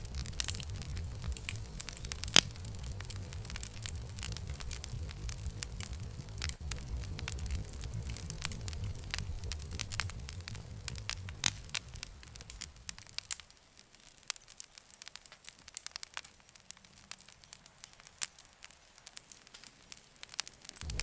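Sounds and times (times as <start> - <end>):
low rumble: 0.0 - 13.3
campfire crackling and popping: 0.0 - 21.0.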